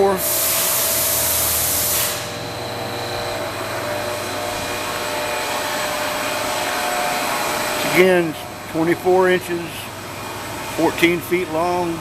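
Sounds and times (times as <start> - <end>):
loud hiss: 0.0 - 2.4
machine shop whirring hum: 0.0 - 12.0.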